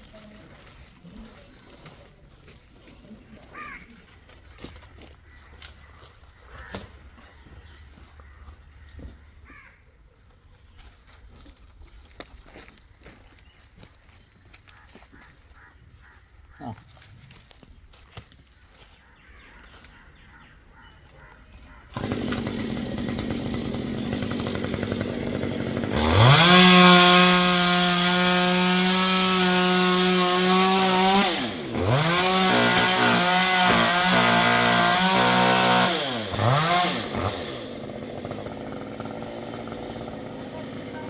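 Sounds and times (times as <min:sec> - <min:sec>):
chainsaw revving: 0:21.9 - 0:41.0.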